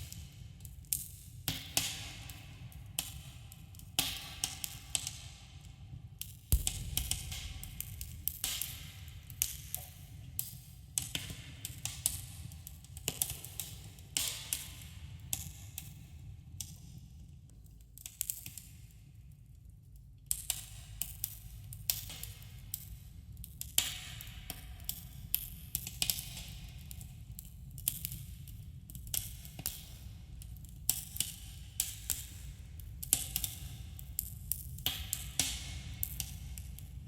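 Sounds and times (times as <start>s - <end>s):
steady low rumble: 6.6s - 9.4s.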